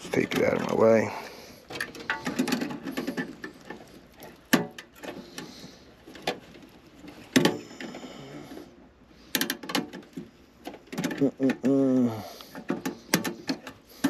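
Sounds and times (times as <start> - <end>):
knocks and clicks of handled board: 9.3 - 11.8, 12.5 - 14.0.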